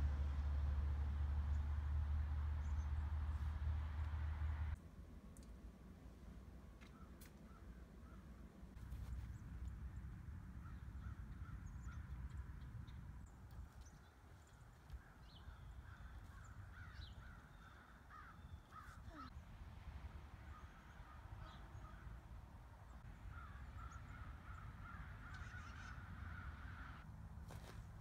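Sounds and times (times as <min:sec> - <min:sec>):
low outdoor rumble: 0:00.0 - 0:28.0
faint harsh bird calls: 0:13.5 - 0:19.4, 0:20.5 - 0:27.0.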